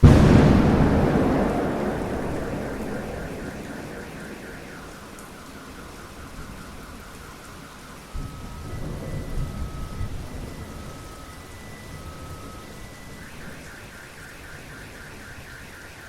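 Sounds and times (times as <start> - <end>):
thunder rumbling: 0.0 - 13.7
steady rain falling: 0.0 - 16.0.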